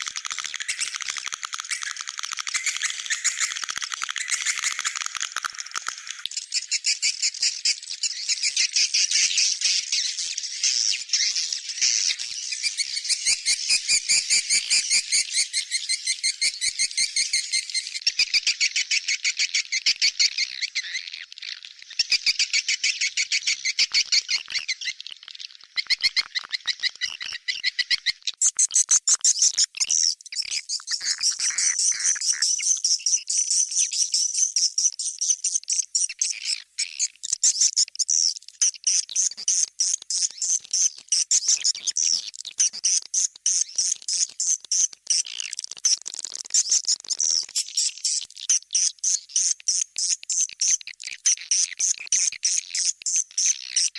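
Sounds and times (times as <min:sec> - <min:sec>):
rapid twittering bird chirps: 0:00.0 - 0:53.9.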